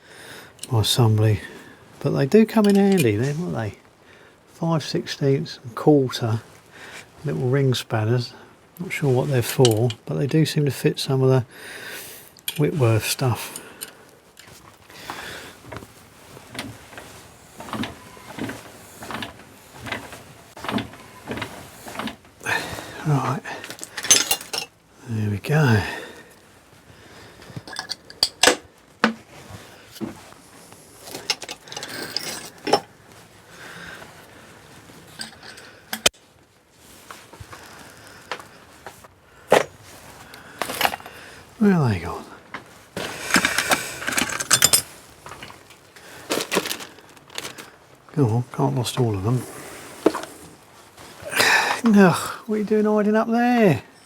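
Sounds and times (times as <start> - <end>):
hand tools clicking and knocking: 2.6 - 3.4, 9.5 - 10.0, 13.4 - 23.0, 23.6 - 24.7, 27.6 - 29.2, 31.1 - 32.9, 35.1 - 36.2, 40.6 - 41.1, 43.0 - 47.6.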